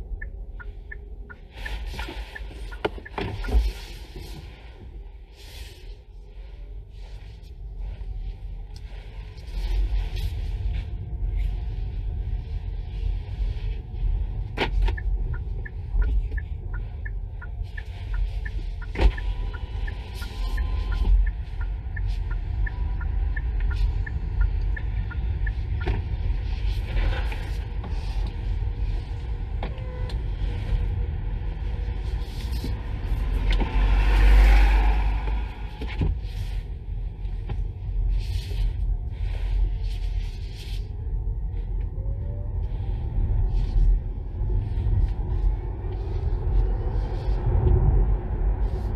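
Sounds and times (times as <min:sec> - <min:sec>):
regular ticking: 0:00.0 - 0:03.2, 0:14.9 - 0:26.2
car tyre rumble: 0:00.0 - 0:48.9
swell of noise: 0:32.8 - 0:35.9.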